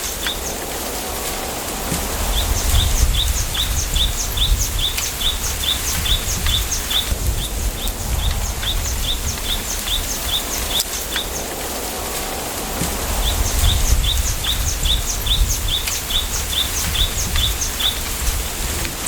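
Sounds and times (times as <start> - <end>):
low wind rumble: 0.0 - 19.0
small bird chirping: 2.2 - 11.5, 13.2 - 18.6.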